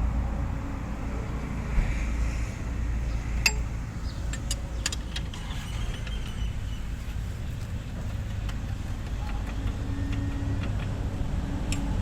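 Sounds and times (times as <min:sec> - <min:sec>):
steady low rumble: 0:00.0 - 0:12.0
spanner clinking on metal bolt: 0:03.4 - 0:03.7, 0:04.3 - 0:06.1.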